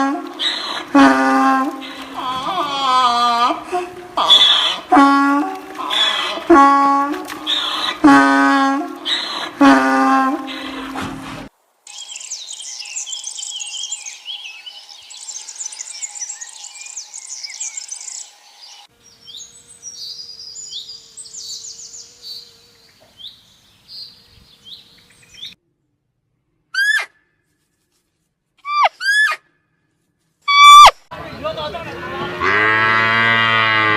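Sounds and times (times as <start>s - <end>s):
birds chirping and singing: 11.9s - 25.6s.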